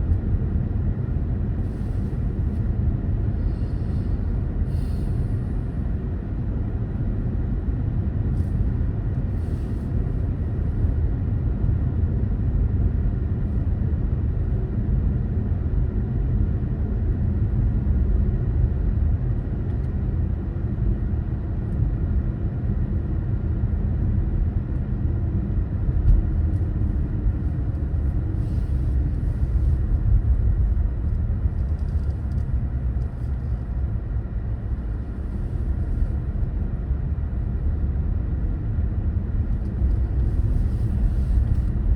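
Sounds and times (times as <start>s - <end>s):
car driving road rumble: 25.8s - 41.9s.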